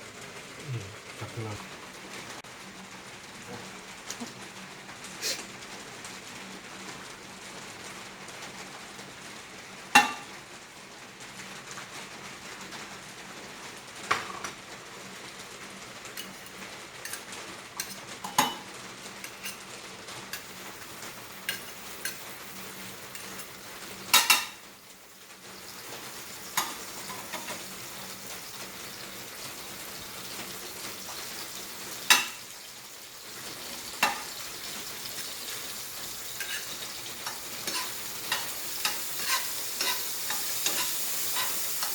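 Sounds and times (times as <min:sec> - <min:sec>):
butter sizzling in a pan: 0:09.6 - 0:10.4, 0:15.2 - 0:41.9
metal utensil knocking a pan: 0:24.1 - 0:24.6, 0:32.1 - 0:32.4, 0:34.0 - 0:34.4.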